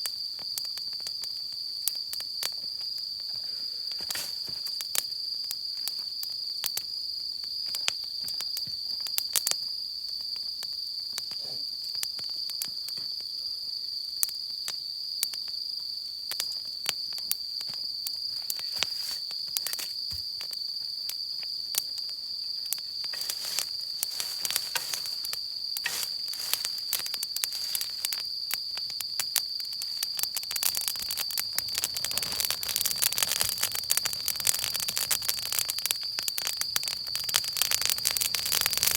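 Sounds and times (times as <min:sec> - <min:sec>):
high-pitched insect trill: 0:00.0 - 0:38.9
campfire crackling and popping: 0:16.3 - 0:38.9.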